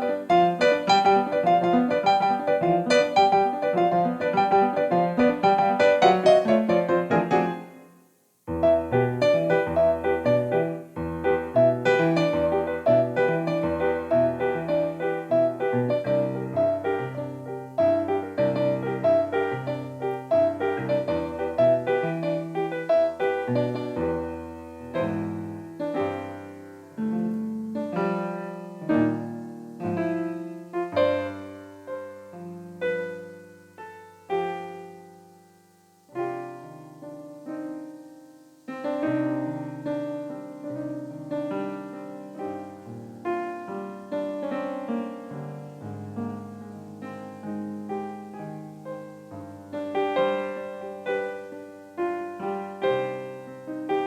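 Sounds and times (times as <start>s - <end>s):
electronic keyboard piano playing: 0.0s - 35.3s.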